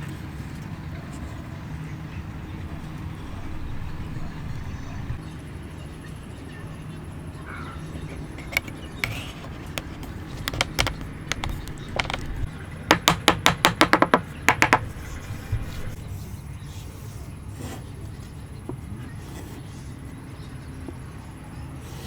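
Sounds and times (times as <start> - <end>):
woodworking knocks and taps: 8.0 - 14.9.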